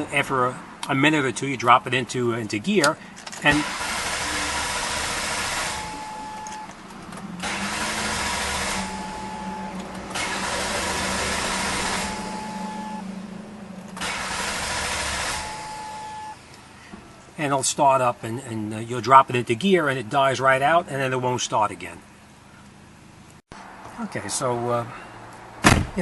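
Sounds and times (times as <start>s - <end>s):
car engine running: 3.5s - 16.6s
short steady tone: 5.7s - 6.7s, 8.5s - 14.0s
rushing noise: 7.3s - 16.2s.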